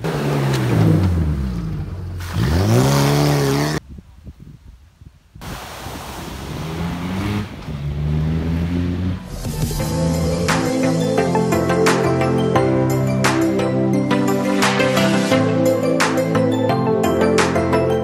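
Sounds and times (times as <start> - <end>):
engine revving: 0.0 - 3.8, 6.3 - 10.9.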